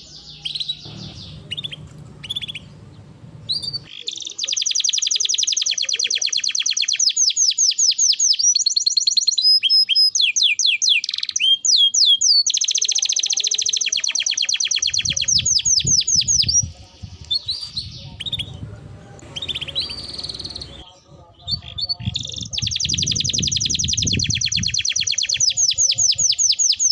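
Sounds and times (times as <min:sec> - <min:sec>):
songbird singing trills: 0:00.0 - 0:26.9
low rumble: 0:00.9 - 0:03.9, 0:17.7 - 0:20.8.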